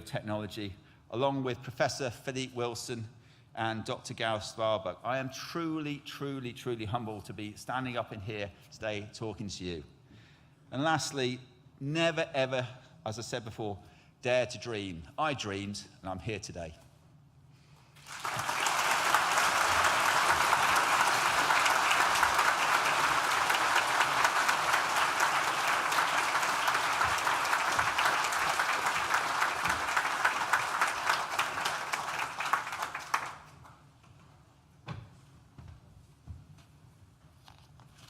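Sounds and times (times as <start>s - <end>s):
audience applauding: 18.0s - 33.8s.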